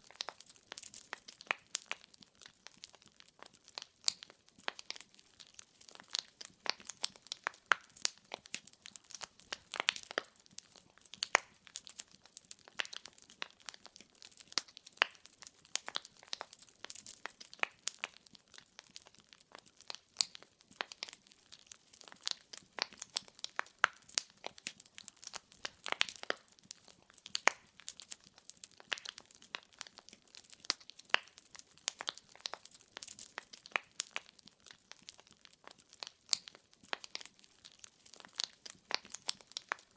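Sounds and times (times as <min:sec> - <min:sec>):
firewood crackling and popping: 0:00.0 - 0:39.9.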